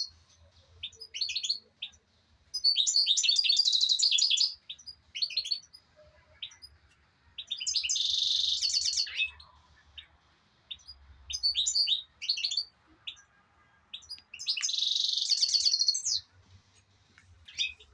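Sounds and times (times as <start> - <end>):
songbird trilling: 2.6 - 5.7, 7.4 - 9.4, 10.7 - 12.7, 14.0 - 16.3
short bird chirps: 2.6 - 5.8, 7.4 - 10.1, 10.7 - 16.3.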